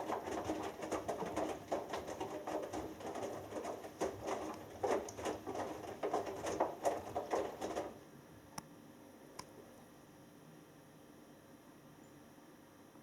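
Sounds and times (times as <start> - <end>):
washing machine drum tumbling: 0.0 - 8.0
water sloshing and splashing: 0.0 - 8.0.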